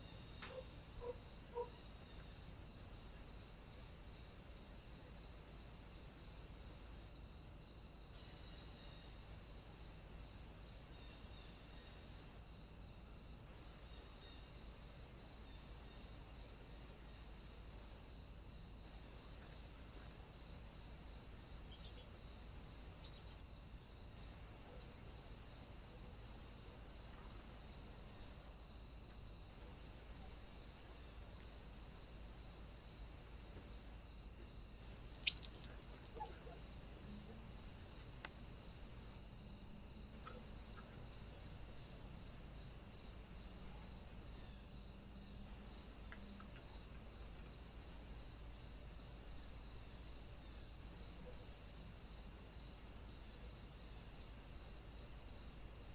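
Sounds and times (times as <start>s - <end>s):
small tick: 35.3s - 35.8s, 38.0s - 38.4s, 46.1s - 46.7s.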